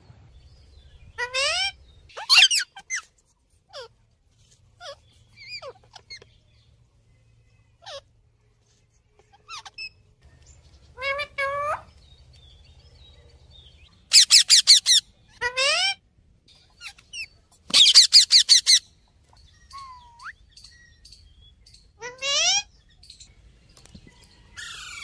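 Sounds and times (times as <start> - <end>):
parrot calling: 1.1 - 3.1, 4.8 - 6.3, 7.8 - 8.1, 10.9 - 11.9, 14.1 - 16.1, 16.7 - 18.9, 19.6 - 21.1, 22.0 - 22.8.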